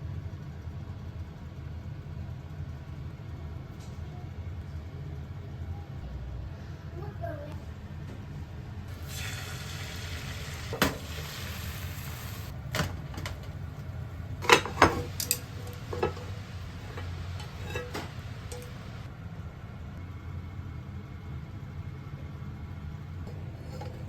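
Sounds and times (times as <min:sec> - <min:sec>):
steady low hum: 0:04.4 - 0:24.0
hiss: 0:08.9 - 0:12.5.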